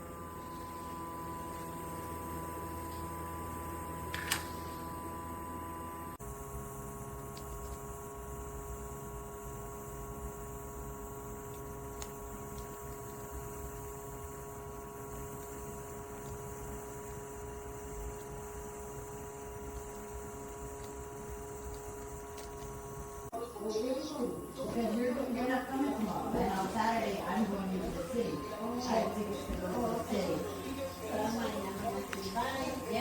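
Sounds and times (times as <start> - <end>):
electrical hum with tones: 0.0 - 33.0.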